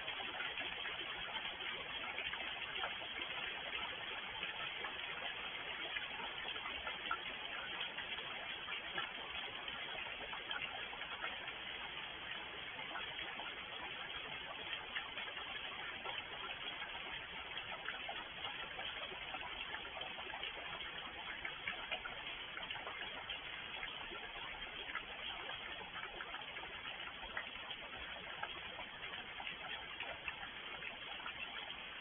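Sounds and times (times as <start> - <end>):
raindrops ticking: 0.0 - 32.0.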